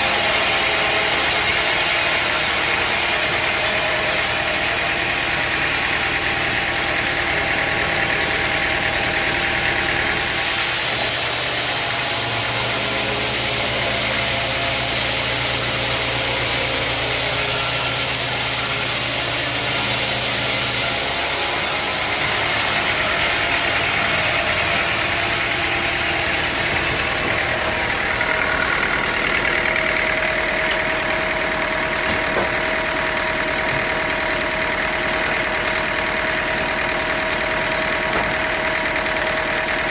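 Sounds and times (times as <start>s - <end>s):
sawmill machinery droning: 0.0s - 39.9s
bright hiss: 10.1s - 21.0s.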